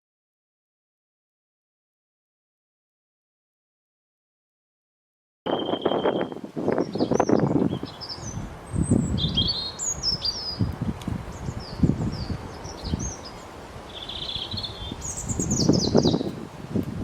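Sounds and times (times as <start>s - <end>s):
songbird chirping: 5.5s - 16.4s.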